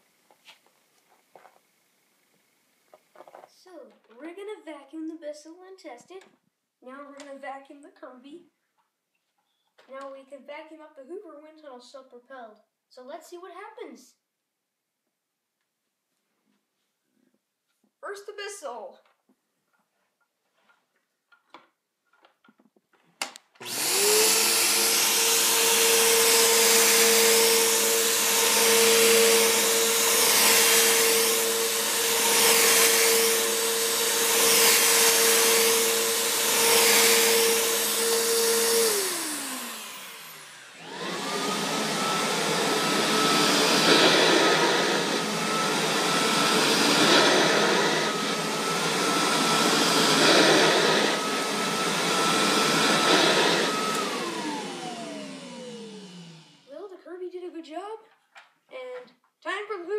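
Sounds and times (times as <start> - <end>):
upright vacuum cleaner running: 23.6 - 56.8
vacuum cleaner whine: 23.6 - 56.8.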